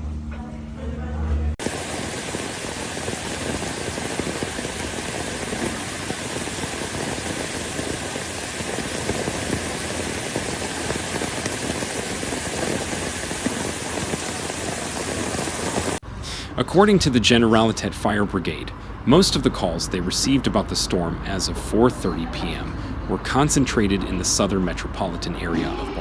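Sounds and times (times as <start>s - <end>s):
rushing water hiss: 1.6s - 16.5s.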